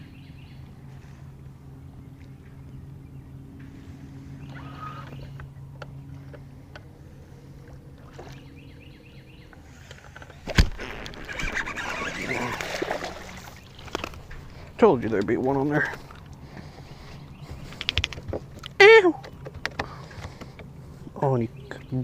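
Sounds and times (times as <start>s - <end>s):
water splashing: 7.6s - 8.5s, 10.4s - 16.4s.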